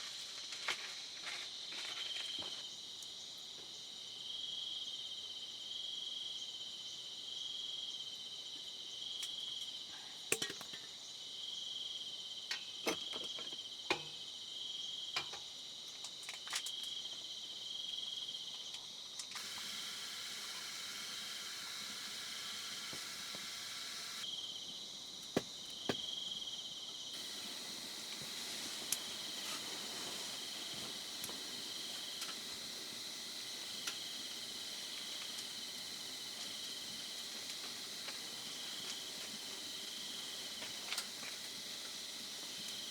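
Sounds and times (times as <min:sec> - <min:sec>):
pulsing insect chirp: 0:19.2 - 0:25.1, 0:25.7 - 0:42.9
insect high-pitched trill: 0:19.3 - 0:24.6, 0:26.1 - 0:42.9.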